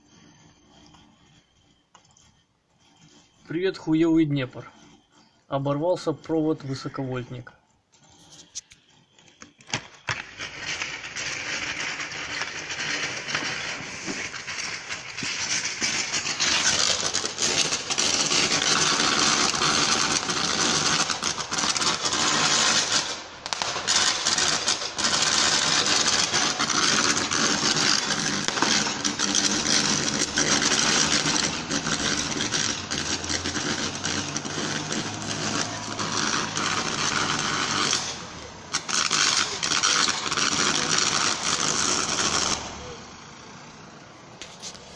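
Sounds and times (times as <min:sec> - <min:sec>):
power line arcing crackling buzz: 0:08.2 - 0:44.9.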